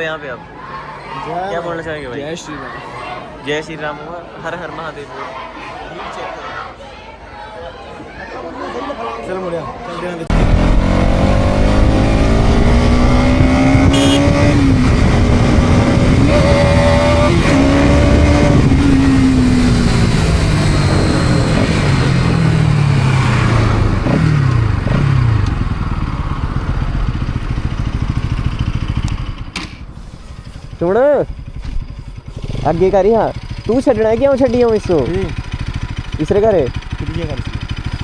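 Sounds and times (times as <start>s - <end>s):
wind and road noise: 10.3s - 34.4s
motorcycle engine: 10.3s - 38.0s.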